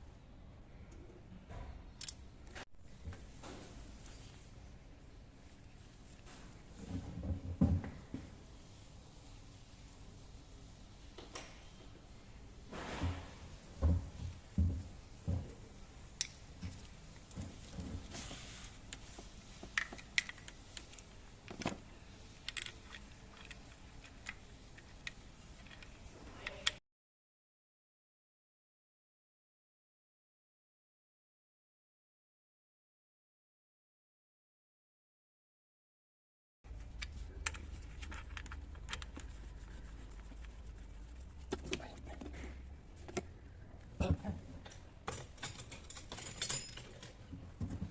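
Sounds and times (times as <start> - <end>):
low steady hum: 36.7 - 47.9
metallic clinks of hand tools: 45.4 - 47.1.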